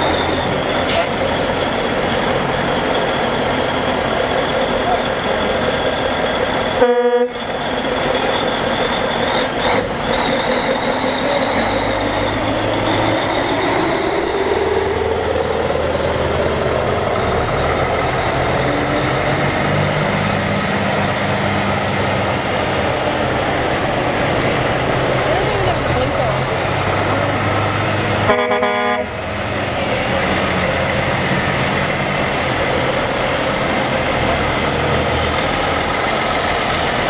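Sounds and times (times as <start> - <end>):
heavy truck engines passing: 0.0 - 37.0
truck accelerating: 0.0 - 37.0
truck horn toot: 6.8 - 7.5, 27.8 - 29.3.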